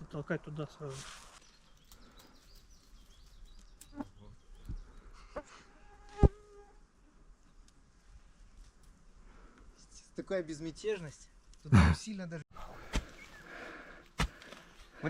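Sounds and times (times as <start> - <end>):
insect buzzing: 5.4 - 7.0.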